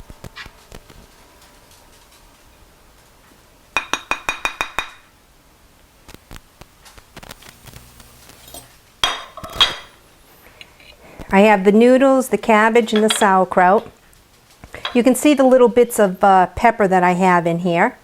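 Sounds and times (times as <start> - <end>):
utensil clinking against a dish: 3.8 - 5.0, 12.9 - 13.4, 14.8 - 15.2.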